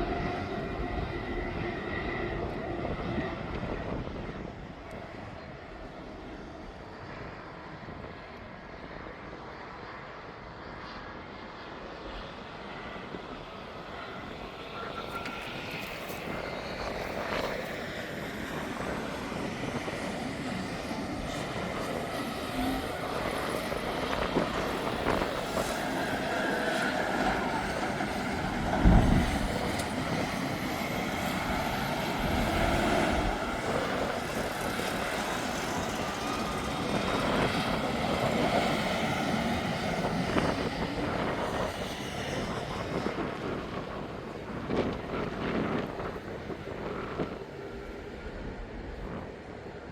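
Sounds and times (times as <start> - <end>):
engine noise approaching: 13.1 - 43.1.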